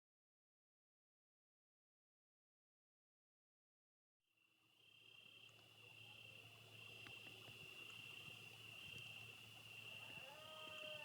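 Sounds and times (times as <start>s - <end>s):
faint low hum: 4.5s - 11.0s
insects trilling: 4.7s - 11.0s.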